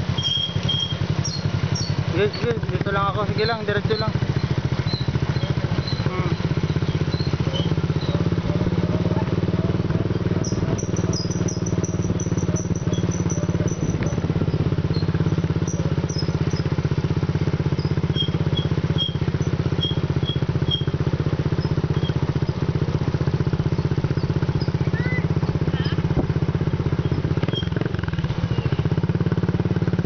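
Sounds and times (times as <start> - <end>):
atv engine running: 0.0 - 30.0.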